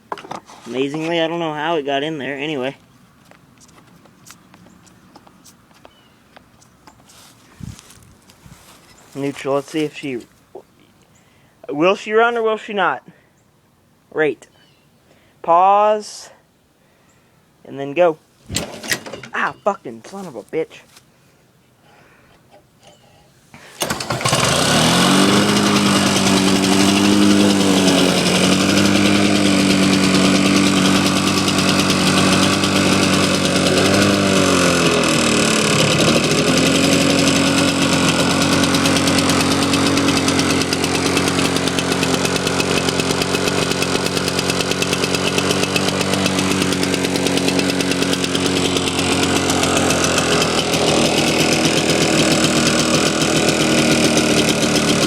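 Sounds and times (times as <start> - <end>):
lawn mower engine running: 6.7 - 10.6, 18.5 - 20.4, 22.4 - 55.0.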